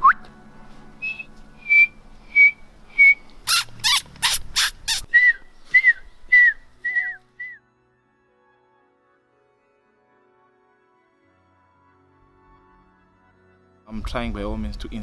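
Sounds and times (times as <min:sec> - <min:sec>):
man whistling bird calls: 0:00.0 - 0:07.6.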